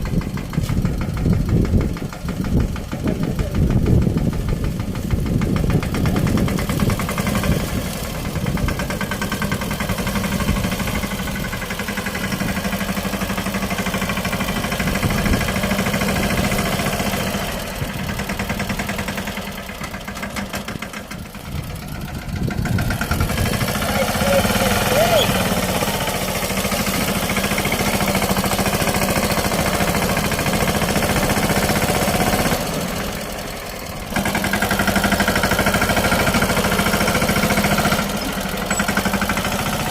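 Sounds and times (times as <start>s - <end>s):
small diesel engine chugging: 0.0s - 39.9s.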